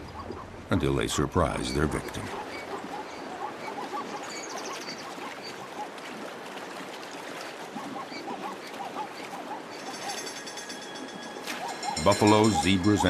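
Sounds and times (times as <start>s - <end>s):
rushing water: 0.0s - 13.0s
animal calls: 1.6s - 6.0s, 7.7s - 13.0s.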